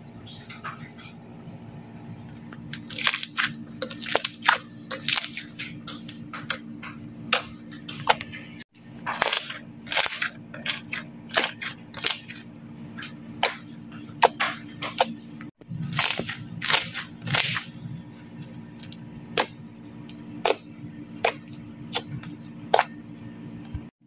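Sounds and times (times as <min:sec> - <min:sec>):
slime popping and crackling: 0:02.7 - 0:05.5, 0:16.0 - 0:17.6.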